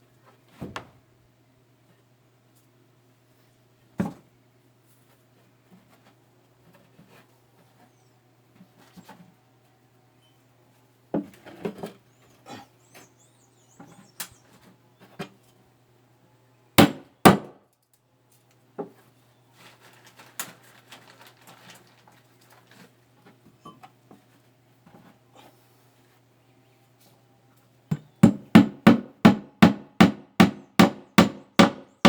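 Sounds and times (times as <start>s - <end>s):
wood being hammered: 16.8s - 17.6s, 27.9s - 32.0s.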